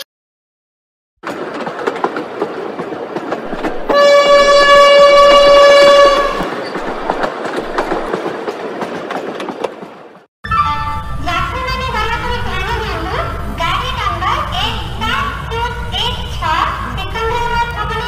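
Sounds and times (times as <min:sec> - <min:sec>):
wheels clacking over rail joints: 0:01.2 - 0:10.3
train rumbling on rails: 0:01.2 - 0:18.0
train horn blast: 0:03.9 - 0:06.5.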